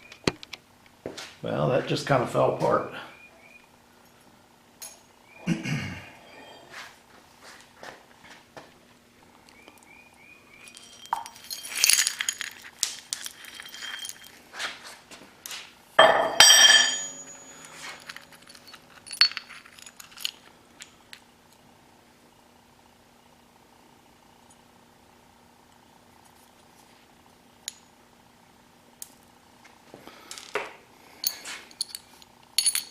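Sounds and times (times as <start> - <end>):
metal pieces clinking and clattering: 10.6 - 14.4, 16.2 - 20.5, 31.2 - 32.9.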